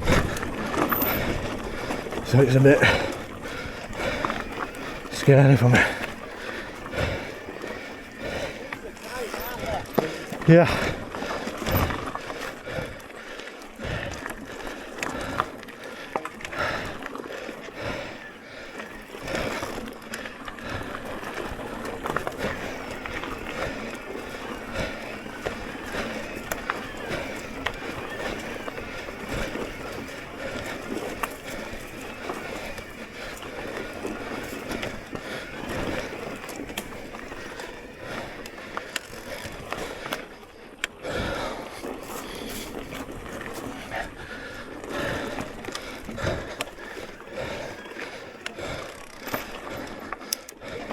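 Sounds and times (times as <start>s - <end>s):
bike rattling and clicking: 0.0s - 50.9s
tyres crunching over ground: 0.0s - 50.9s.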